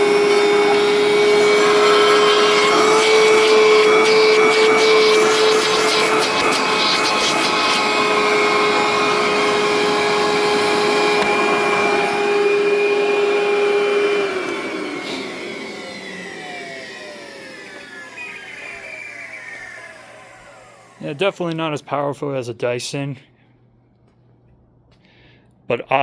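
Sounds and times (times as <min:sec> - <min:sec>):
vacuum cleaner motor whining: 0:00.0 - 0:21.5.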